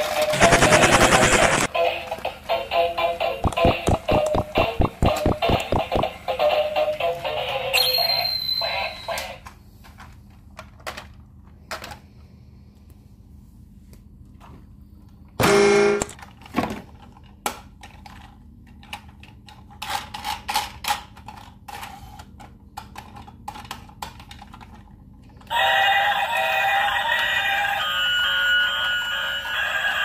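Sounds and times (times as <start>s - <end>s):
toy electronic music and effects: 0.4s - 1.7s, 3.3s - 6.8s
plastic toy clicks and knocks: 17.4s - 21.8s, 22.4s - 24.8s.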